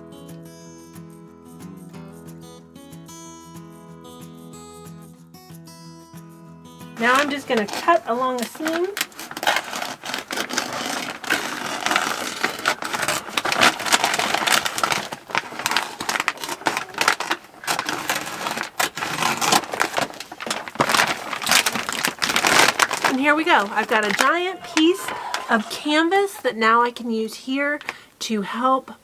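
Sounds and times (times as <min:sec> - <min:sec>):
scissors cutting sack: 0:07.0 - 0:26.4
sack crinkling and rustling: 0:07.0 - 0:26.6.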